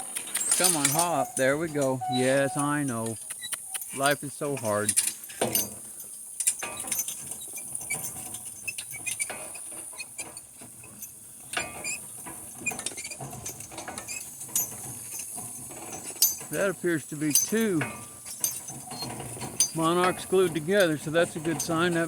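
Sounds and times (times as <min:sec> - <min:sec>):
metal harness clinking: 0:00.2 - 0:02.9, 0:12.7 - 0:22.0.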